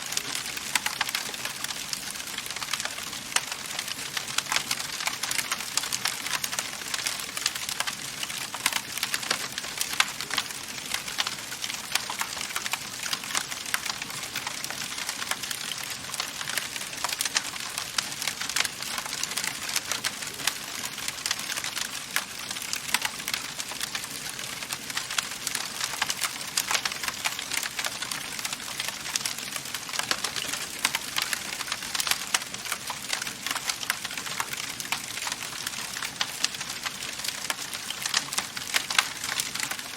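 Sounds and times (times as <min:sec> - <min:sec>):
soft hiss of fire: 0:00.0 - 0:39.9
wood fire crackling: 0:00.0 - 0:39.9.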